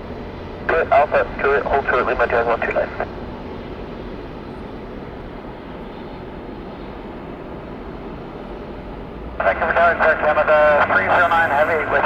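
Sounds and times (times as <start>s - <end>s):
jet engine rushing: 9.4s - 12.0s.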